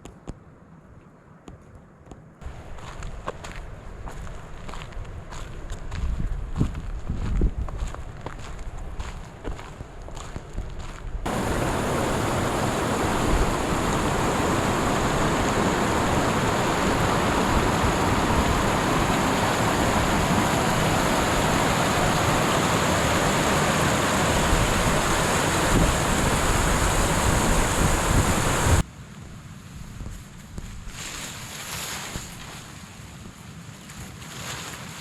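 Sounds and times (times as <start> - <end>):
rushing water roar: 11.3 - 28.8.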